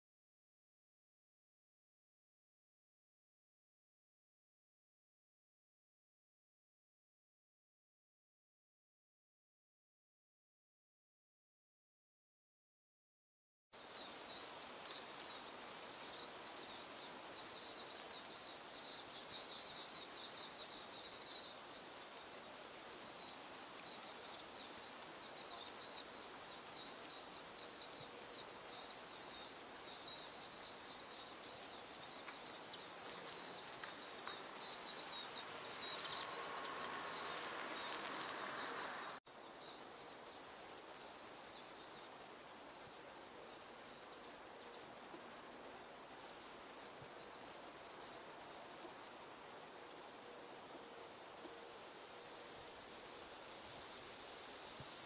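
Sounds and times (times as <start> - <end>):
small birds chattering: 13.8 - 45.4
outdoor hiss: 13.8 - 55.0.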